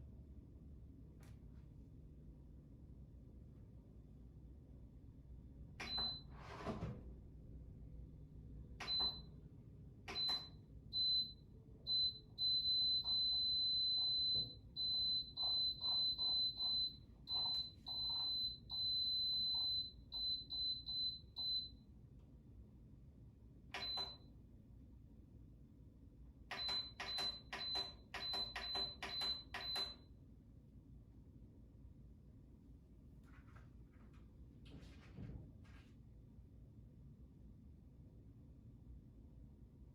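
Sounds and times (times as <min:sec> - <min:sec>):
high-pitched control panel beeps: 0:10.1 - 0:21.7, 0:26.5 - 0:30.0.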